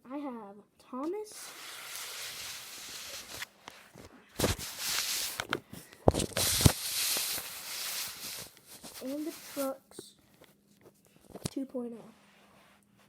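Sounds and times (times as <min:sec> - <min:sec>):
handling rustling: 0:01.4 - 0:09.8.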